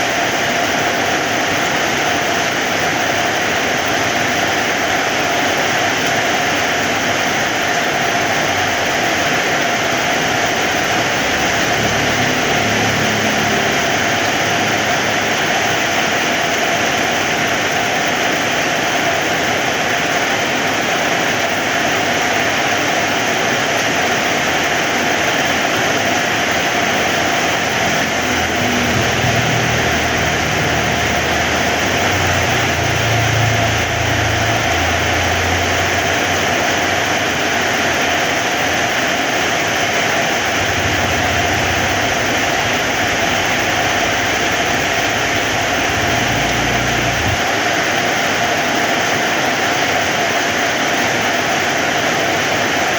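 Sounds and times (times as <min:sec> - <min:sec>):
heavy rain hissing: 0:00.0 - 0:52.9
low rumble: 0:27.0 - 0:36.4, 0:40.4 - 0:47.7.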